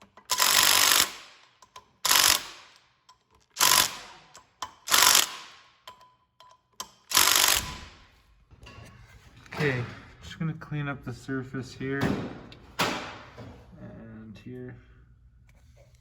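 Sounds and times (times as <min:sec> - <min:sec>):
ratchet wrench clicking: 0:00.0 - 0:07.9.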